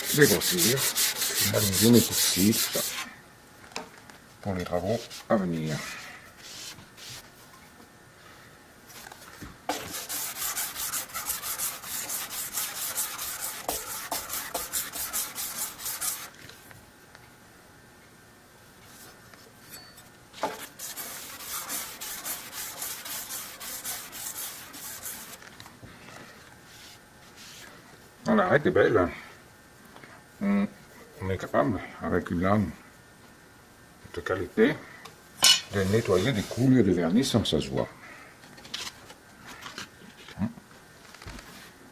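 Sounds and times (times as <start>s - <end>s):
scraper blade rubbing on sandpaper: 0.0s - 3.0s, 9.7s - 16.3s, 20.6s - 25.4s.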